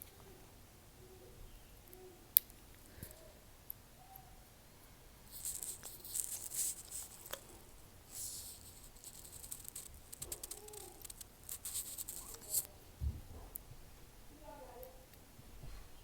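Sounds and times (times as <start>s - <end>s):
small tools clicking and scraping: 5.3s - 12.7s.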